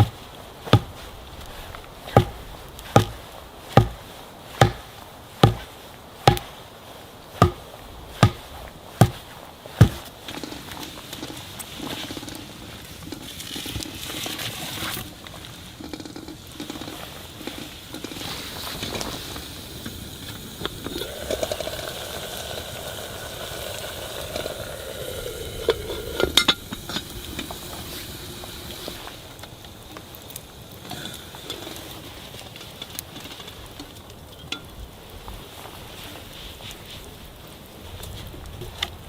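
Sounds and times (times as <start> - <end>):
utensil stirring and scraping pan: 0.0 - 6.6, 7.4 - 15.2
food sizzling in a pan: 15.8 - 32.6.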